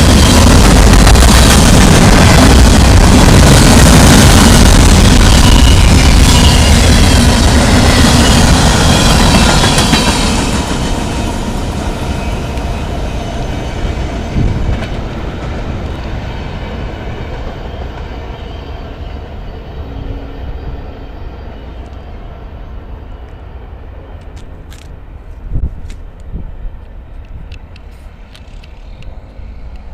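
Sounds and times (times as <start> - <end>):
freight train cars rolling: 0.0 - 29.9.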